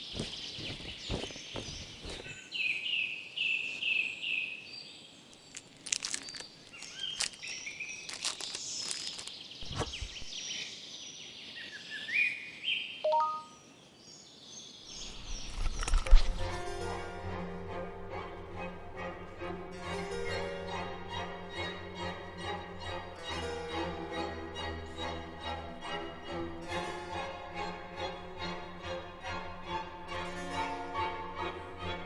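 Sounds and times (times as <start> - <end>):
birds chirping: 0.0 - 16.6.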